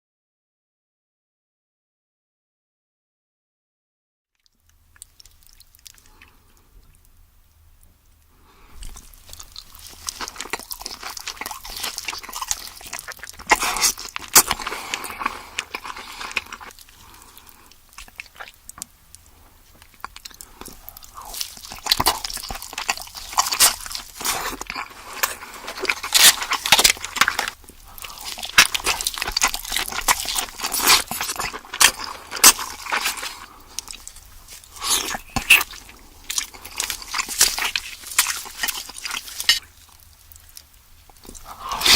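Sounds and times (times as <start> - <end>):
crunching and wet chewing: 4.4 - 41.9
crab shells cracking: 8.8 - 41.9.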